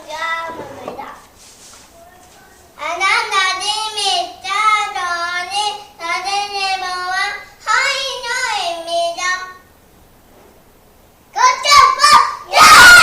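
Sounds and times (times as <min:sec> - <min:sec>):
children chanting sing-song: 0:02.8 - 0:09.6, 0:11.4 - 0:13.0.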